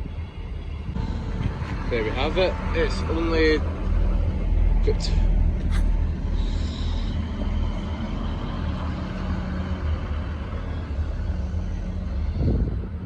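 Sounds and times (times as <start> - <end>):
faint humming tone: 0.0 - 13.0
train diesel engine rumbling: 0.0 - 13.0.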